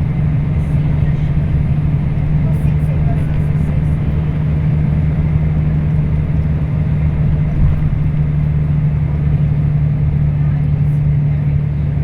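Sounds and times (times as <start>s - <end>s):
diesel bus engine running: 0.0s - 12.0s
road noise: 0.0s - 12.0s.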